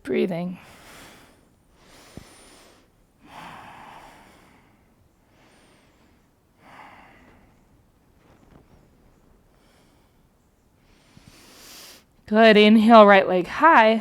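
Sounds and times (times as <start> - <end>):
person breathing: 0.6 - 7.7, 9.4 - 12.1.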